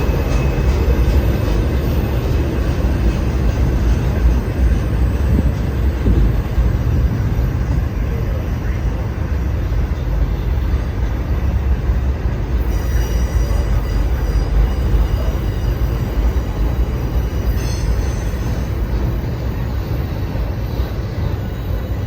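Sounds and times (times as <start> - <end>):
freight train wheels rumbling: 0.0 - 22.0
high-pitched wheel squeal: 12.5 - 19.3.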